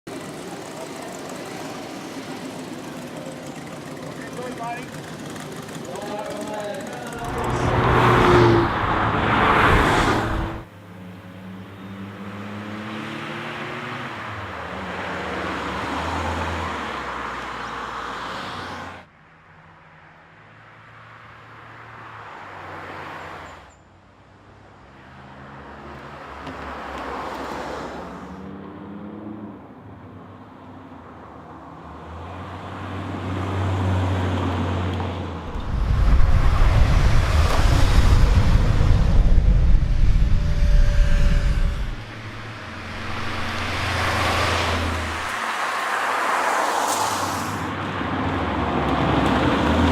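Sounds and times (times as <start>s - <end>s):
car engine accelerating hard: 0.2s - 16.6s, 35.4s - 46.4s
dense low rumble: 7.2s - 10.7s, 35.4s - 45.4s
rushing wind noise: 7.2s - 10.7s, 35.4s - 45.9s.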